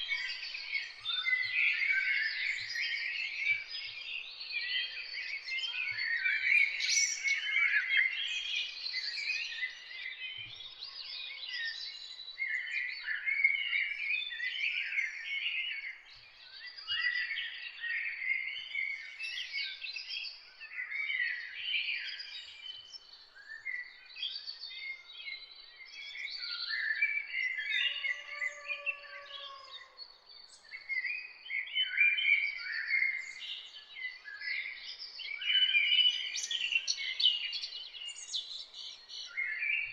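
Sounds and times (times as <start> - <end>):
songbirds singing and chirping: 0.0 - 39.9
low drawn-out bird call: 27.8 - 30.0.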